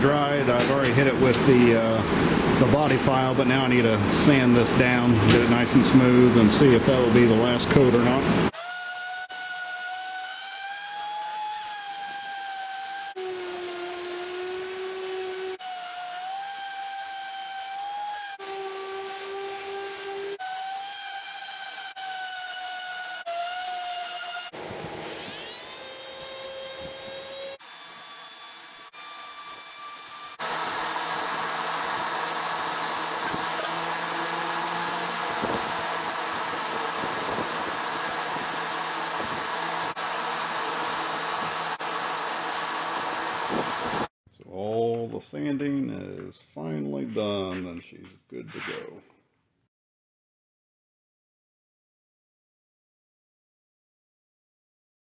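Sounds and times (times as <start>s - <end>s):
power sander whining: 30.3s - 44.1s.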